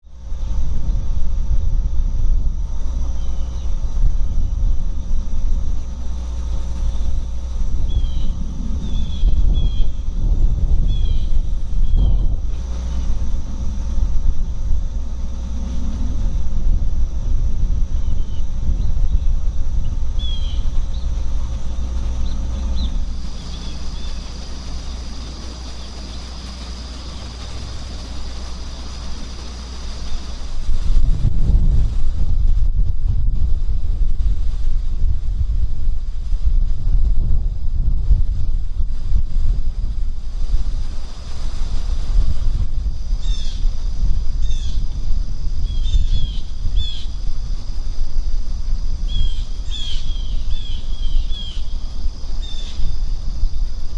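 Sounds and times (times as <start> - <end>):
high-pitched insect hum: 0.0 - 53.9
low outdoor rumble: 0.0 - 53.9
small bird chirping: 7.8 - 10.0, 10.8 - 12.2, 18.0 - 26.4, 45.7 - 47.2, 49.1 - 51.8, 52.4 - 52.9.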